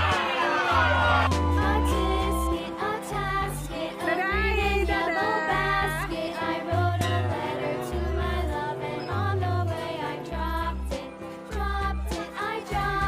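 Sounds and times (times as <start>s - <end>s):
children's song over loudspeaker: 0.0s - 8.1s.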